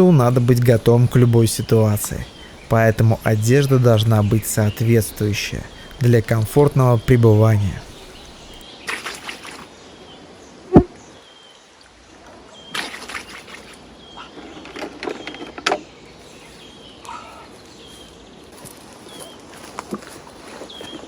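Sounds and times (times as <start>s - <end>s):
rustling in undergrowth: 0.0s - 8.6s, 14.4s - 21.0s.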